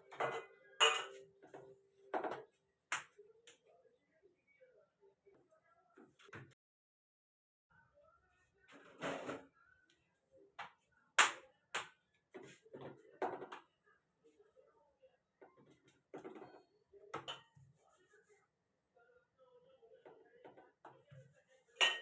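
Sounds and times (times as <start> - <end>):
kitchen utensils knocking and clinking: 0.0 - 1.2, 21.8 - 22.0.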